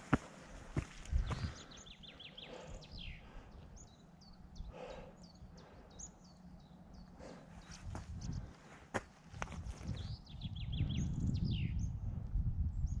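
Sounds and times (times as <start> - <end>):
songbird calls: 0.0 - 8.7, 9.4 - 12.0
wind rumble: 7.6 - 13.0.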